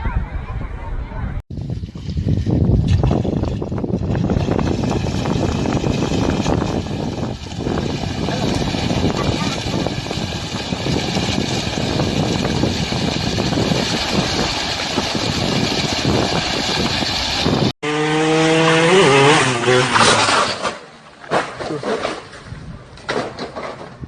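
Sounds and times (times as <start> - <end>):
motor engine running: 3.8 - 19.9.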